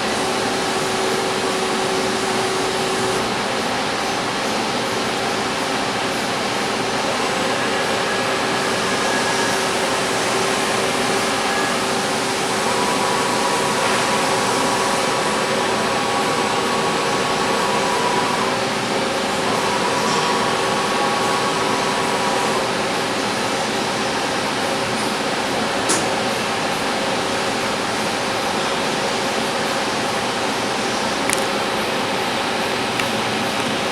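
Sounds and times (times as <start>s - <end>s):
lathe machine whir and hum: 0.0s - 33.9s
higher machine tone: 6.1s - 23.8s.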